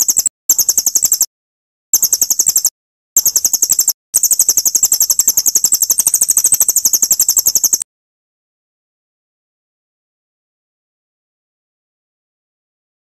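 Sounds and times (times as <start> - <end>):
songbird chirping trill: 0.0 - 1.3, 2.0 - 7.8.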